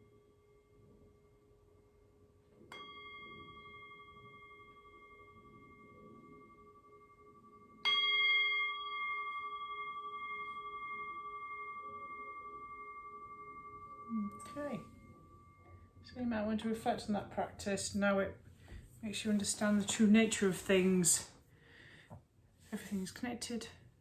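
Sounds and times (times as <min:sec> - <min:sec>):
singing bowl ringing: 0:00.0 - 0:17.7.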